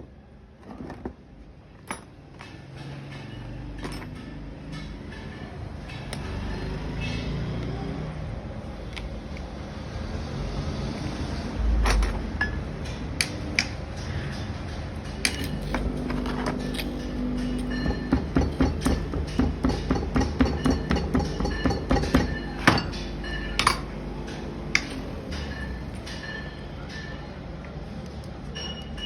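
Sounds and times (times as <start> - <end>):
metal clinking and tapping: 1.8 - 6.3, 15.0 - 27.2.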